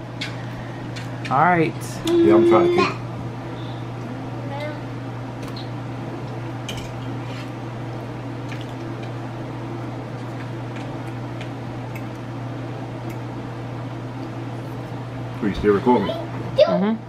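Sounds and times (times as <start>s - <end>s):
person chewing food: 10.1s - 12.3s.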